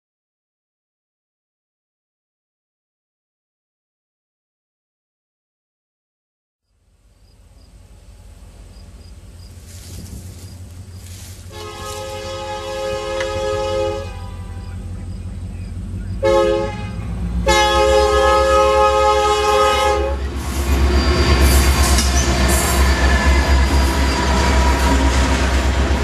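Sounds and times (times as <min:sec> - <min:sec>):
low engine rumble: 0:06.7 - 0:26.0
train wheels clattering over rails: 0:08.4 - 0:13.7, 0:20.2 - 0:26.0
locomotive air horn blasts: 0:11.0 - 0:15.4, 0:16.2 - 0:25.5.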